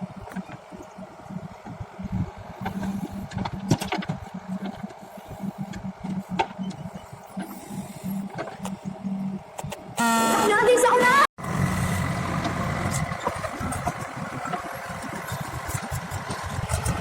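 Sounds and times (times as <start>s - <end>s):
diesel machinery running: 0.0s - 17.0s.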